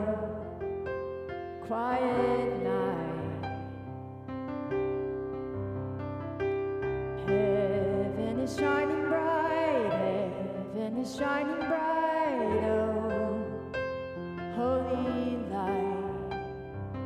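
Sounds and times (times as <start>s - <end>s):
person singing slow song: 0.0s - 0.6s, 1.5s - 3.8s, 7.2s - 16.5s
soft electric piano: 0.0s - 17.0s.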